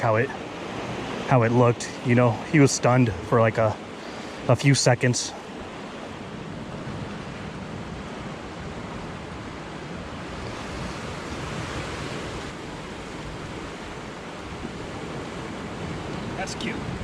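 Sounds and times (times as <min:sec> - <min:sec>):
surf washing against rocks: 0:00.0 - 0:17.0
wind buffeting microphone: 0:05.3 - 0:17.0.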